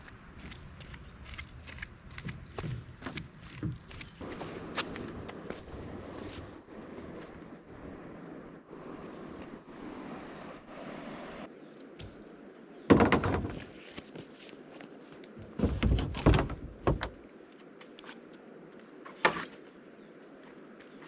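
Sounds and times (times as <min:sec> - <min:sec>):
heavy thumps and knocks: 0:12.9 - 0:13.7, 0:15.6 - 0:17.2.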